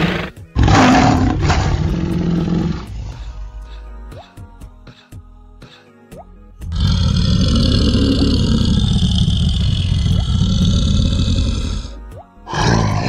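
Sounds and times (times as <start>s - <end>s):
large animal roaring: 0.0s - 3.4s, 6.7s - 13.0s
background music: 0.0s - 13.0s.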